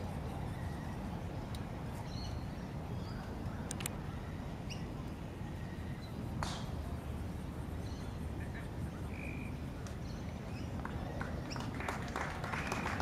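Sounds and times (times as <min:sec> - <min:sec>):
sharp click: 0:03.7 - 0:04.0.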